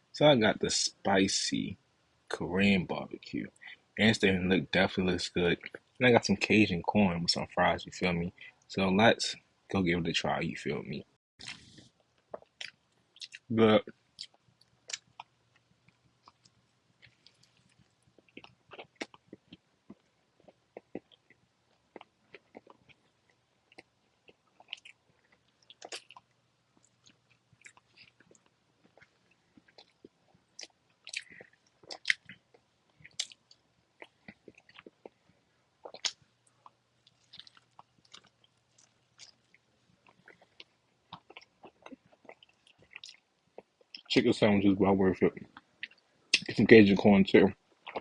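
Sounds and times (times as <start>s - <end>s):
person chewing crunchy food: 16.2s - 35.2s, 35.8s - 44.1s, 47.7s - 48.0s.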